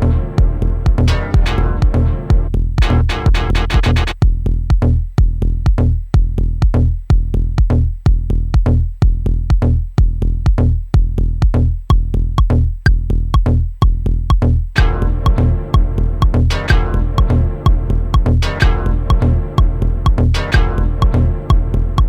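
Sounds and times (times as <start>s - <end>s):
sustained chord texture: 0.0s - 4.1s, 14.8s - 22.0s
dub techno groove: 0.0s - 22.0s
kick drum: 0.0s - 22.0s
ticking hi-hats: 11.9s - 22.0s.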